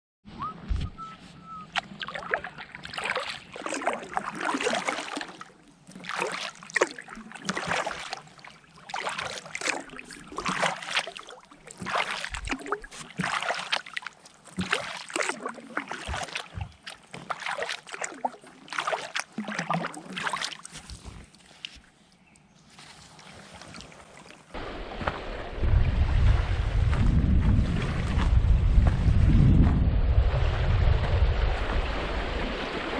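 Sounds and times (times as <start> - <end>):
paddle swishing through water: 0.3 - 32.9
water dripping: 1.7 - 21.8.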